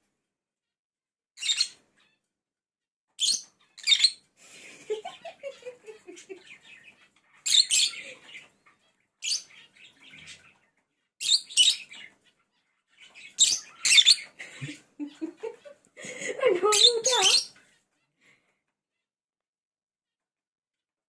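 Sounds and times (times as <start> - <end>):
lovebirds chirping shrilly: 1.4 - 2.2, 3.2 - 4.3, 5.0 - 10.6, 11.2 - 14.5, 16.2 - 17.9.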